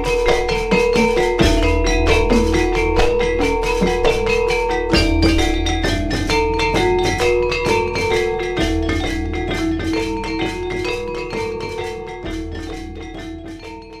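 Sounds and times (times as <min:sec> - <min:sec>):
gamelan metallophones and gongs: 0:00.0 - 0:14.0.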